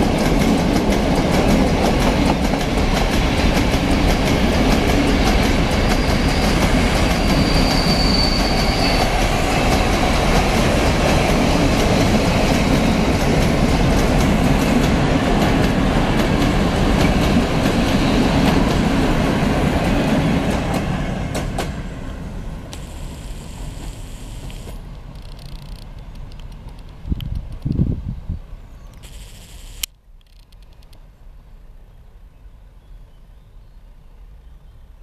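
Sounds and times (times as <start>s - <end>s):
freight train rolling past: 0.0s - 25.1s.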